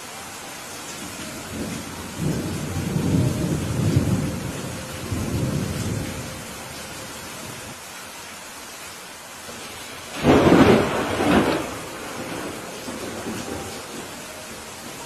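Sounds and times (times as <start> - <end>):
heavy rain: 0.0 - 15.0
thunder rolling: 1.5 - 6.3, 10.1 - 14.2.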